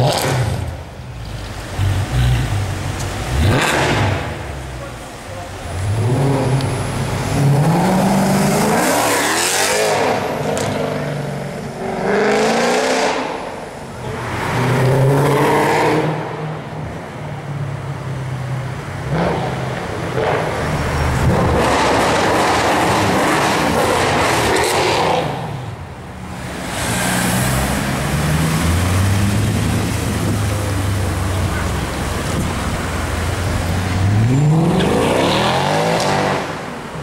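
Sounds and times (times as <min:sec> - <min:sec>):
car engine revving hard: 0:03.3 - 0:04.5, 0:05.7 - 0:11.0, 0:11.8 - 0:13.4, 0:21.2 - 0:25.6, 0:33.3 - 0:36.8.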